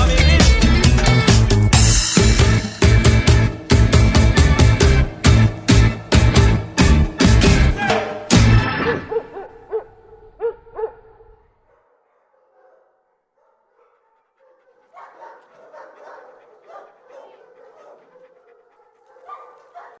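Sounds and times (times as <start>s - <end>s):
dog whining and barking: 7.8s - 11.3s, 13.8s - 20.0s.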